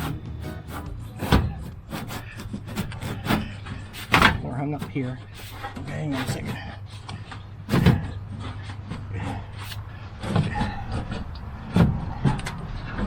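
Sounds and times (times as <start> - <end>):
metal clunks and knocks: 0.0 - 5.0, 5.7 - 9.5, 10.2 - 13.0.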